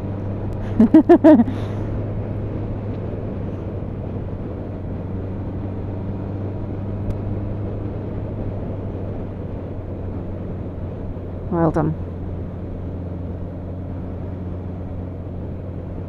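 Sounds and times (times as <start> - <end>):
motorcycle engine humming: 0.0 - 16.0
road and wind noise: 0.0 - 16.0.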